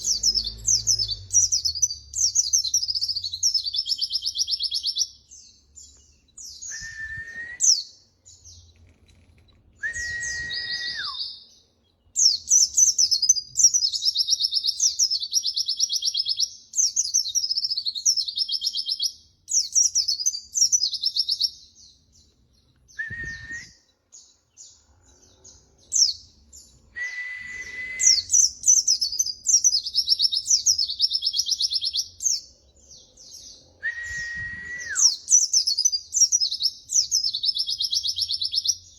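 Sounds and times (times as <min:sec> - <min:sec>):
bird chattering trills: 0:00.0 - 0:03.6
bird whistled notes sliding down: 0:09.8 - 0:11.3.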